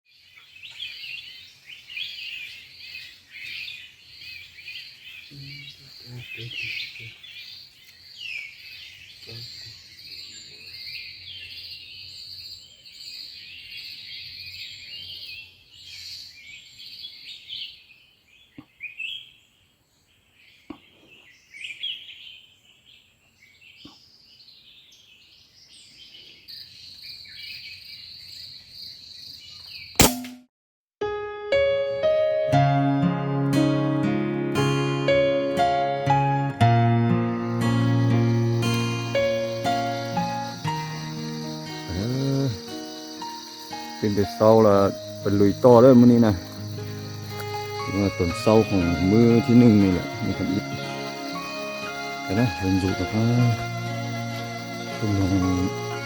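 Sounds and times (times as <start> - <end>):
small birds chirping: 0.1 - 30.0, 35.2 - 56.0
high insect drone: 5.2 - 7.3, 37.2 - 56.0.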